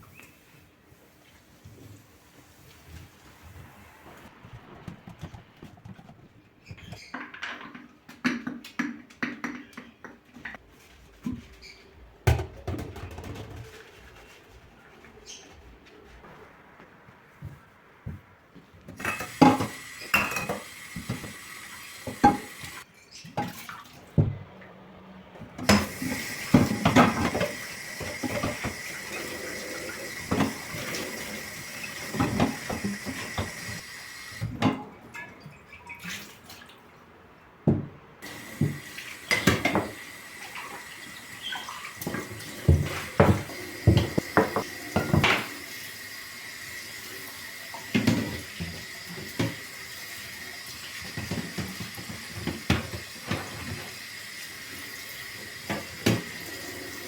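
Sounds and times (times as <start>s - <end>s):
tap water running: 18.9s - 22.9s, 25.6s - 36.1s, 38.2s - 57.0s
dishes and cutlery clinking: 19.0s - 20.7s.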